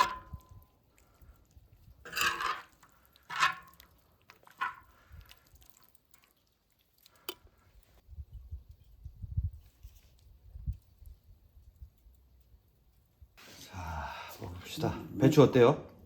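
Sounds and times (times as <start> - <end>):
splashy clatters of food: 0.0 - 8.0.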